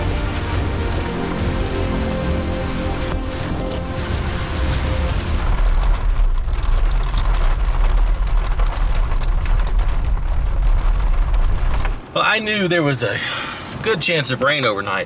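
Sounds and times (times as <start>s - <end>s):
thunder rumbling: 0.0s - 12.0s
heavy rain: 0.0s - 12.1s.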